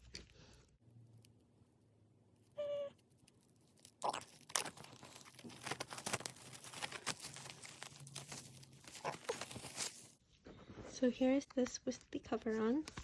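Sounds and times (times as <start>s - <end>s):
plastic shrink wrap tearing: 3.3s - 10.2s.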